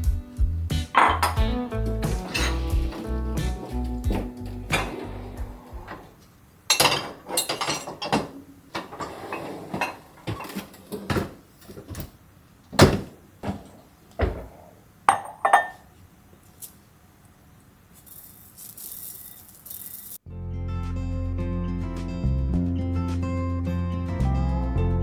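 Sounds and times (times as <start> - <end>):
dishes and glassware clinking: 1.0 - 1.5, 2.2 - 6.1, 6.7 - 11.3, 14.2 - 15.9.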